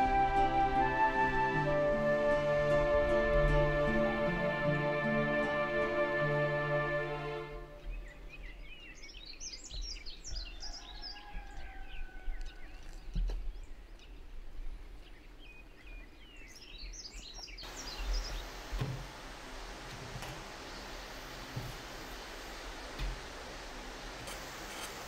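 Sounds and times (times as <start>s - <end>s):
songbirds chirping: 0.0s - 25.0s
room hiss: 17.6s - 25.0s
low outdoor rumble: 17.7s - 25.0s.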